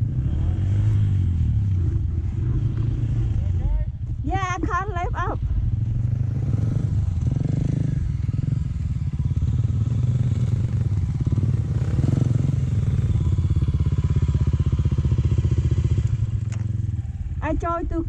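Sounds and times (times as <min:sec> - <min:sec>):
motorbike engine revving: 0:00.0 - 0:18.0.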